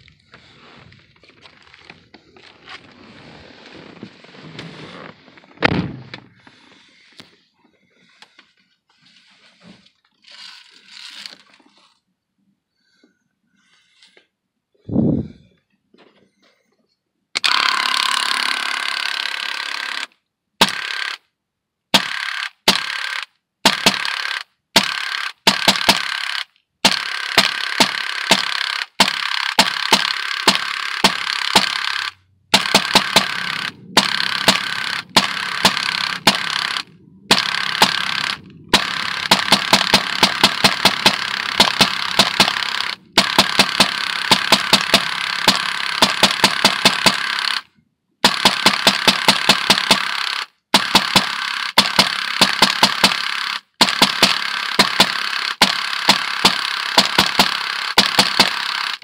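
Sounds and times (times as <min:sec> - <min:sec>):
bb pistol firing bursts: 0:17.4 - 0:21.2, 0:21.9 - 0:59.0.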